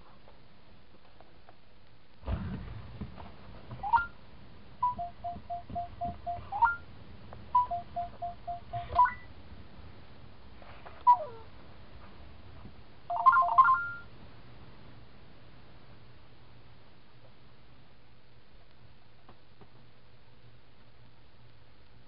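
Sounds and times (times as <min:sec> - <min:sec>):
robot dog electronic beeps: 0:07.6 - 0:09.3.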